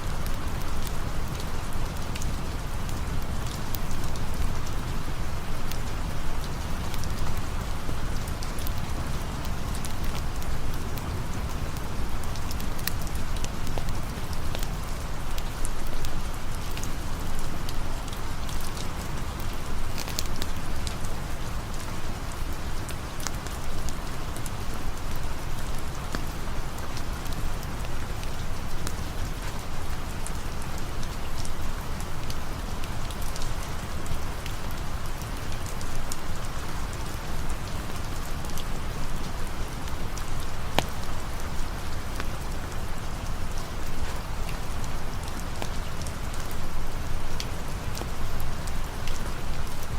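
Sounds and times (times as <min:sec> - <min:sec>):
rain hissing: 0:00.0 - 0:49.9
campfire ticks and pops: 0:20.0 - 0:20.6, 0:40.7 - 0:41.2, 0:42.1 - 0:42.5.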